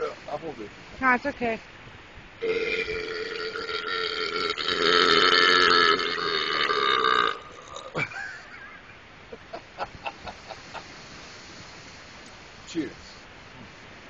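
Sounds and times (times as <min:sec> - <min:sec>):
long loud belch: 0:02.4 - 0:08.1.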